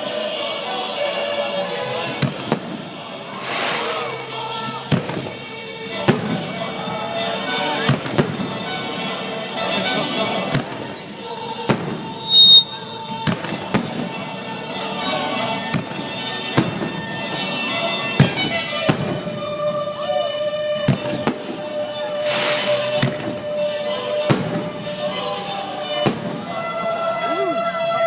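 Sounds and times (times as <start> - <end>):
fireworks bangs: 2.2 - 27.2
sustained high tones: 12.2 - 12.8.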